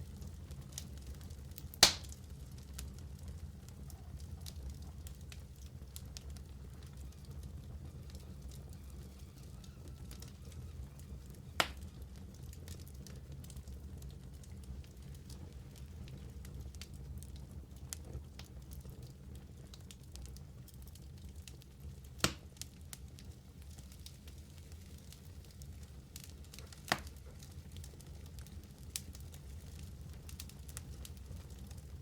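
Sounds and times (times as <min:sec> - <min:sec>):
fire crackling: 0:00.0 - 0:32.0
fire rumbling: 0:00.0 - 0:32.0
sharp fire pops: 0:01.6 - 0:02.3, 0:11.6 - 0:12.1, 0:22.2 - 0:22.6, 0:26.2 - 0:27.3.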